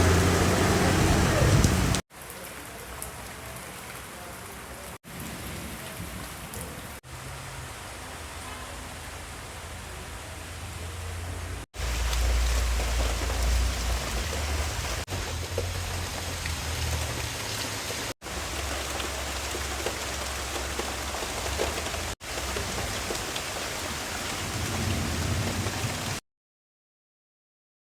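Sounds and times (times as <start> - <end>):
rain drop ticks: 11.8 - 25.8
heavy rain hiss: 11.8 - 26.2.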